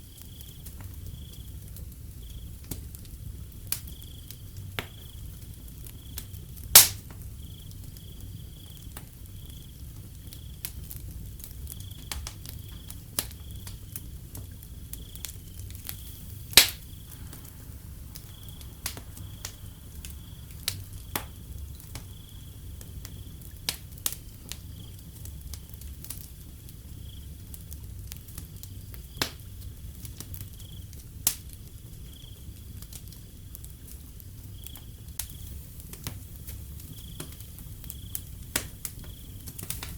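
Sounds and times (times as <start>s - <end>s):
cricket chirping: 0.0s - 2.6s, 3.8s - 6.6s, 7.3s - 27.6s, 28.2s - 31.0s, 31.6s - 32.9s, 34.0s - 39.9s
wood fire crackling: 0.0s - 39.9s
low steady rumble: 14.0s - 26.7s.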